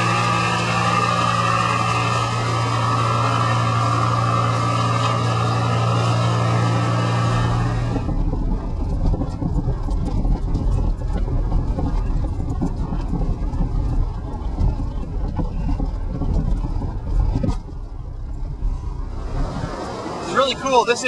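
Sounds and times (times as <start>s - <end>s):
wind buffeting microphone: 7.3s - 20.6s.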